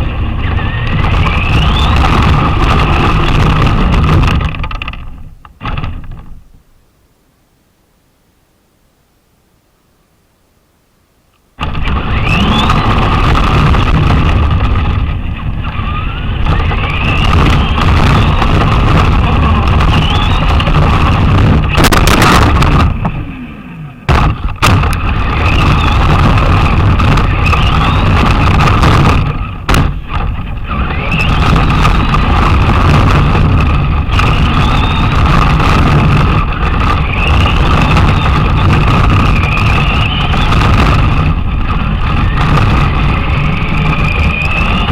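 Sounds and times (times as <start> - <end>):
rc car motor whine: 0.0 - 6.2, 11.6 - 44.9
rc car wheels rumbling: 0.0 - 6.6, 11.6 - 44.9
sharp knock: 24.1 - 25.0.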